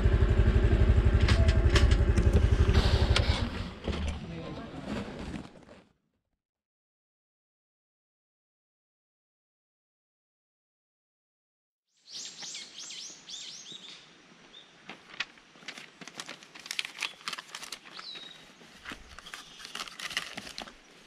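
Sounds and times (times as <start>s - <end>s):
small bird chirping: 12.0s - 14.7s, 17.9s - 18.6s, 19.2s - 19.9s
paper rustling and clicking: 15.0s - 21.0s.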